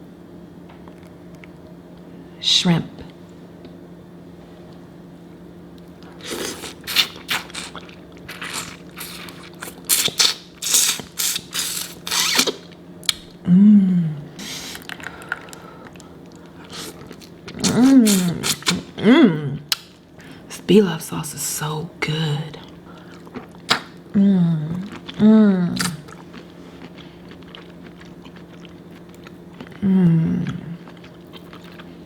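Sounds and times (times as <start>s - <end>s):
crackling and smacking while eating: 0.6s - 2.1s, 5.7s - 13.4s, 14.3s - 19.0s, 19.6s - 20.5s, 22.0s - 32.0s
person humming mmm: 13.4s - 14.8s, 17.6s - 19.7s, 24.1s - 26.1s, 29.7s - 30.8s.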